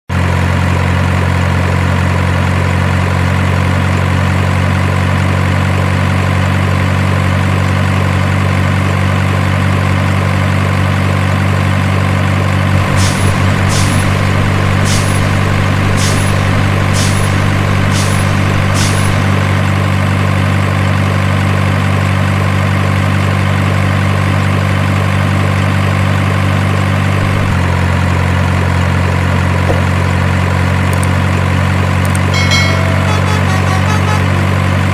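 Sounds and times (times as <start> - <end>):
diesel truck engine idling: 8.7 - 32.8.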